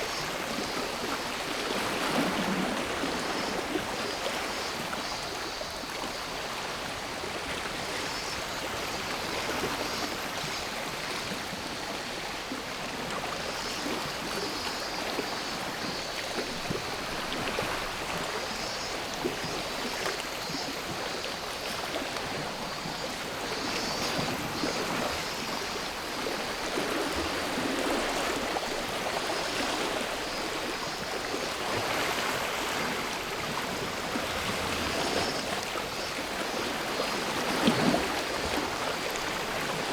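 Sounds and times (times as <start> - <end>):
cicadas droning: 13.4 - 39.9.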